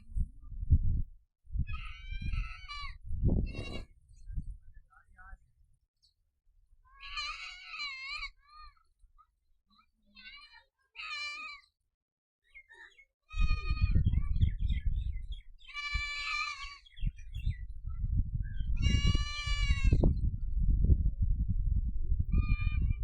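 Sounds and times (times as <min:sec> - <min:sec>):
livestock bleating: 0:01.7 - 0:03.9, 0:07.0 - 0:08.8, 0:10.1 - 0:11.6, 0:13.3 - 0:14.1, 0:15.7 - 0:17.0, 0:18.8 - 0:20.0, 0:22.4 - 0:23.0
uneven low rumble: 0:17.1 - 0:23.0.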